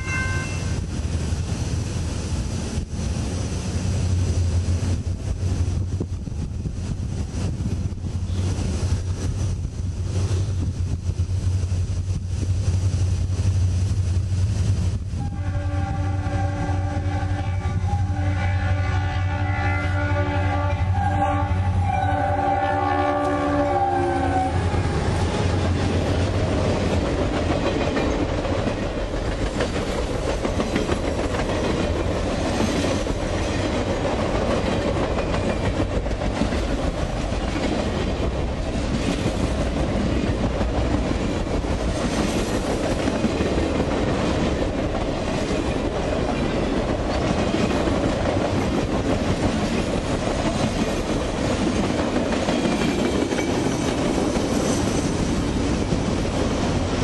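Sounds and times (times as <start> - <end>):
diesel locomotive engine rumble: 0.0 - 57.0
train horn blast: 15.1 - 25.2
train wheels clickety-clack: 24.3 - 57.0.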